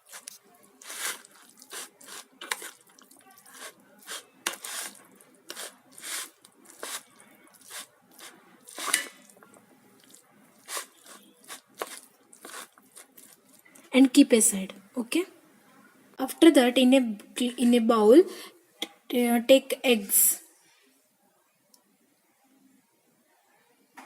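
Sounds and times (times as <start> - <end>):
noodles squishing in a bowl: 0.0 - 13.8.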